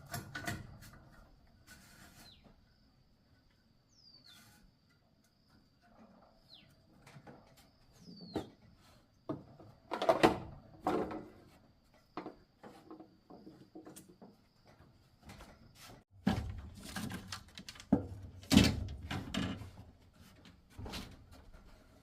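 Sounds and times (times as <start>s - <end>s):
knocks and clatter of handling: 5.8s - 22.0s.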